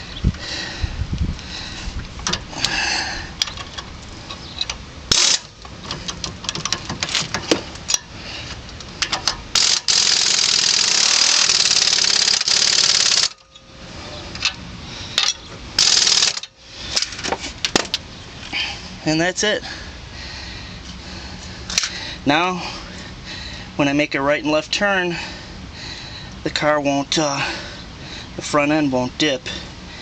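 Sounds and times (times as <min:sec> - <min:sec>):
impact wrench bursts: 0:05.1 - 0:07.5, 0:09.0 - 0:13.5, 0:15.2 - 0:17.3.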